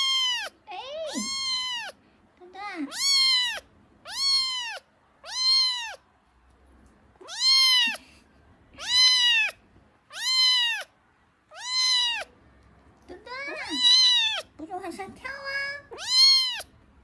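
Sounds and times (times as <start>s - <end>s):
kitten meowing: 0.0s - 2.0s, 2.8s - 6.0s, 7.2s - 8.0s, 8.8s - 10.9s, 11.5s - 12.3s, 13.4s - 14.6s, 15.9s - 16.7s.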